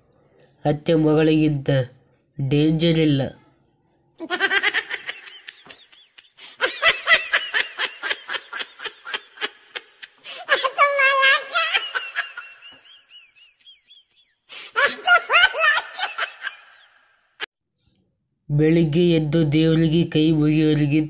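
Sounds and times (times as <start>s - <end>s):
hearty laughter: 4.2s - 17.2s.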